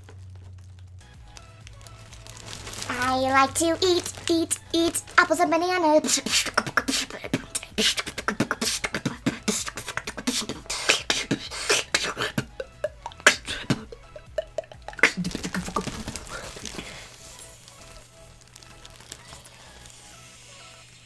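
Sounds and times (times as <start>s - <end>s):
short pitched vocal sounds: 2.9s - 17.1s
beatboxing: 2.9s - 17.6s.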